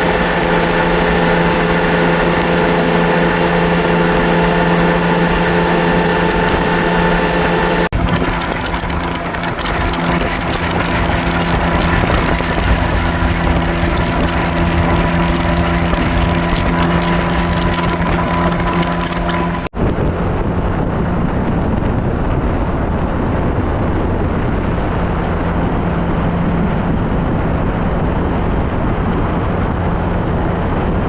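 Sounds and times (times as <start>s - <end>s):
motorcycle engine running: 7.8s - 19.7s.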